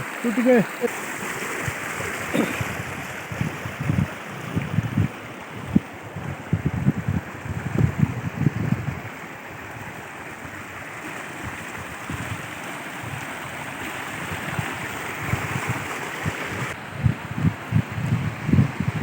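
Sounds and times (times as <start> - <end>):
waterfall rushing: 0.0 - 3.4, 9.2 - 16.8
wind rumbling on microphone: 2.6 - 19.0.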